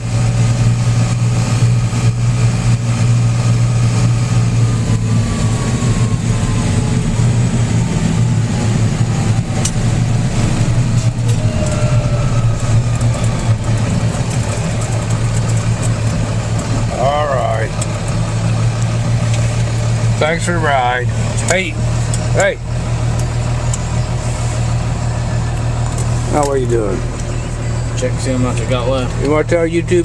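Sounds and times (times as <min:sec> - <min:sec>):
tractor engine running: 0:00.0 - 0:30.0
faint whine sliding down: 0:10.7 - 0:15.9.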